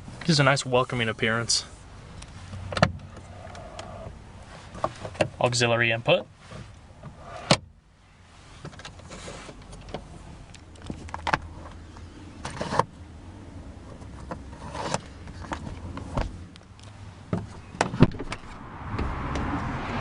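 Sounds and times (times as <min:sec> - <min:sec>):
handling clicks and knocks: 0:08.6 - 0:12.9.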